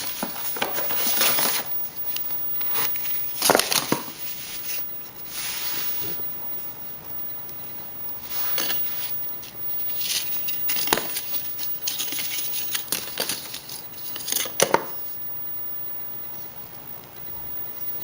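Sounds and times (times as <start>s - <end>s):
paper rustling and crinkling: 0.0s - 6.3s, 8.2s - 15.0s.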